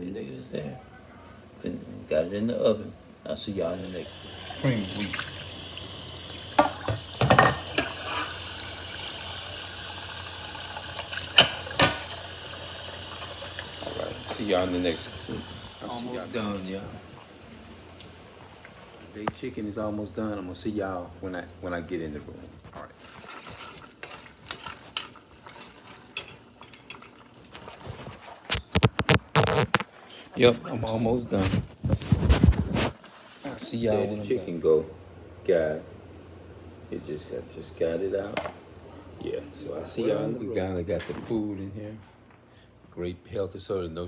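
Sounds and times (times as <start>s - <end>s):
tap water running: 3.5s - 19.8s
utensils and dishes clinking: 6.6s - 8.6s, 10.8s - 16.5s, 23.0s - 27.7s.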